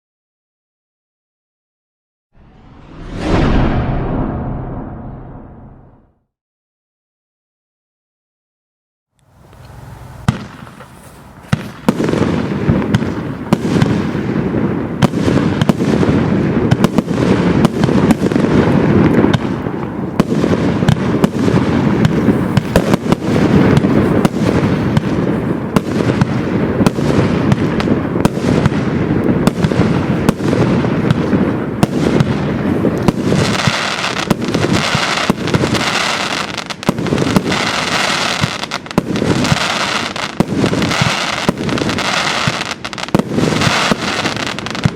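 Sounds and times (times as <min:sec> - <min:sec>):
fireworks barrage: 0:02.4 - 0:06.1, 0:10.2 - 0:44.9
sharp firework cracks: 0:09.6 - 0:44.9.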